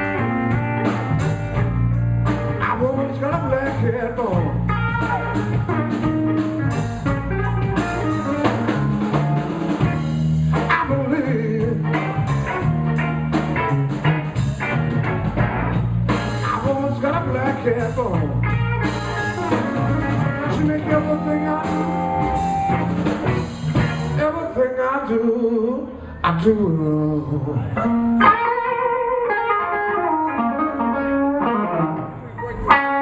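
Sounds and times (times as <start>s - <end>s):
bending guitar lead lines: 0.0s - 24.6s, 26.7s - 33.0s
drum kit: 0.0s - 24.6s
steady bass: 0.0s - 24.7s.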